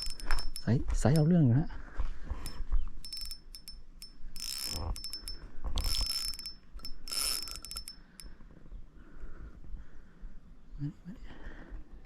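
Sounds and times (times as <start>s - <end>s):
fishing reel drag clicking: 0.0s - 1.3s, 2.4s - 8.3s.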